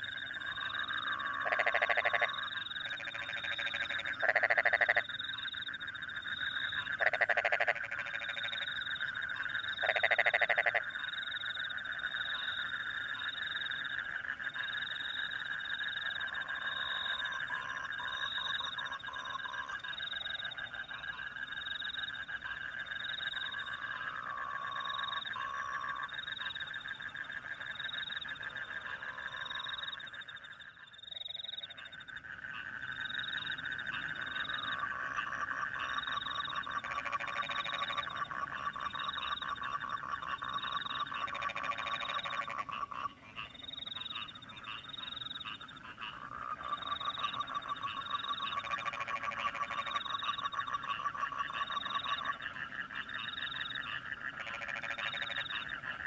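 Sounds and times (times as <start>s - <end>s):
dense trilling of frogs and crickets: 0.0s - 56.0s
loud frog calls: 0.0s - 56.0s.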